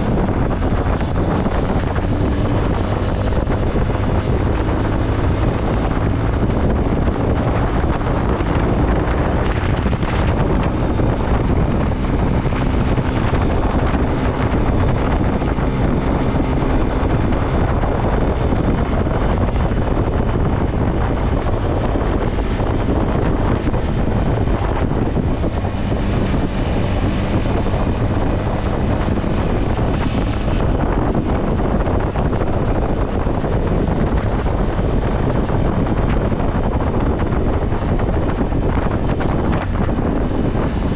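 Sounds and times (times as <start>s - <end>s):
motorcycle engine humming: 0.0s - 40.9s
wind buffeting microphone: 0.0s - 40.9s.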